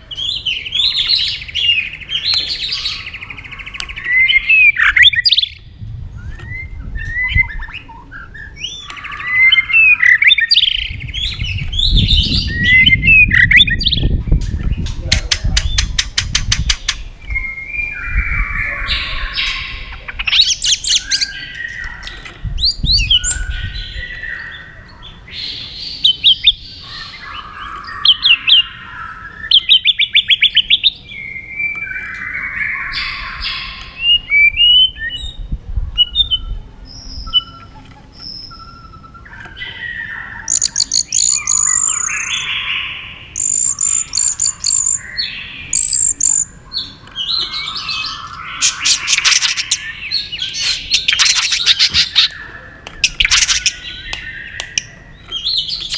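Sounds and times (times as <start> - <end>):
bird singing whistles and rattles: 6.2 - 24.4, 47.2 - 55.9.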